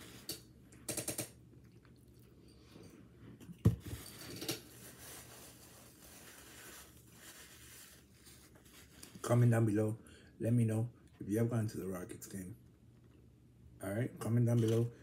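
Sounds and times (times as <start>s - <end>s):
man chewing: 1.4s - 3.6s.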